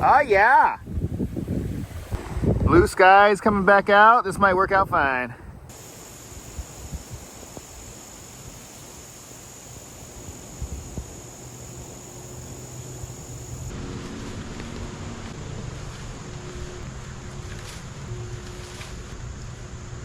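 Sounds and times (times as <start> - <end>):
breeze hiss: 5.7 - 20.0
low hum: 8.7 - 20.0
low rumble: 13.7 - 20.0.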